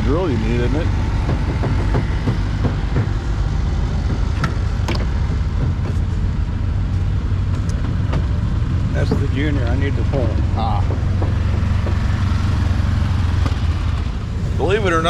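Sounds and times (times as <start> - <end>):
low rumble of engines: 0.0 - 15.0
faint voices: 14.3 - 15.0.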